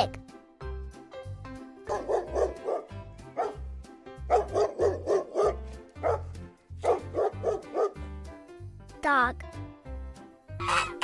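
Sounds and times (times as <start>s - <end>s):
background music: 0.0s - 11.0s
dog barking: 1.9s - 3.6s, 4.3s - 8.0s.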